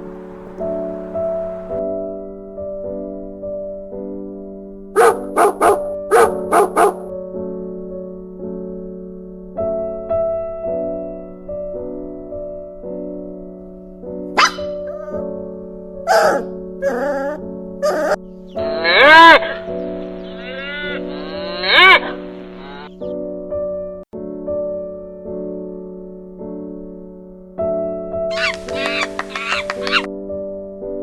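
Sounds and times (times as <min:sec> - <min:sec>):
gentle piano music: 0:00.0 - 0:31.0
dog barking: 0:05.0 - 0:07.1, 0:14.4 - 0:15.2, 0:16.1 - 0:18.2, 0:28.3 - 0:30.1
short animal call: 0:18.6 - 0:22.9, 0:28.3 - 0:30.1.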